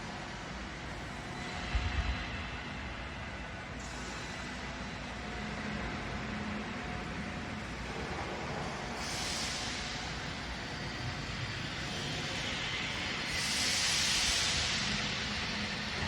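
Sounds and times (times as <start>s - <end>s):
steady machine noise: 3.8s - 16.0s.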